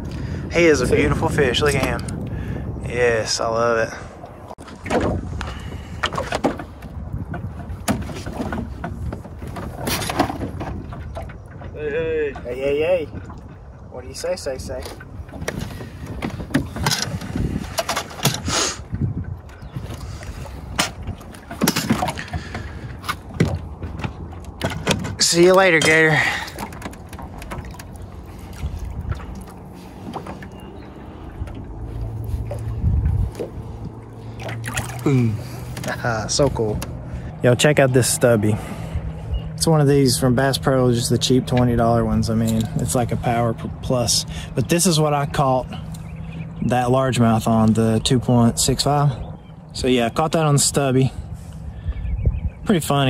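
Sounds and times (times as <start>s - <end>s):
knocks and splashes on boat: 0.0s - 53.0s
wind rumble on microphone: 0.0s - 53.0s.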